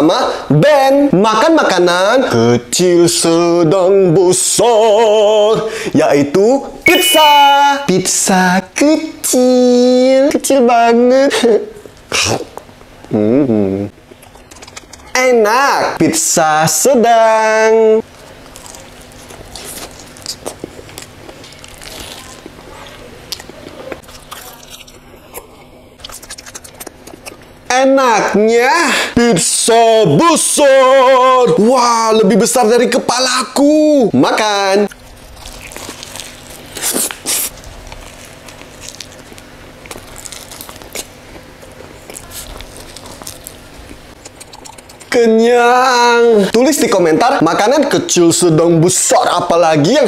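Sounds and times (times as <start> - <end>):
person chewing crunchy pizza: 11.8 - 15.2, 18.0 - 27.7, 34.8 - 45.2
mouth clicks: 43.9 - 45.2.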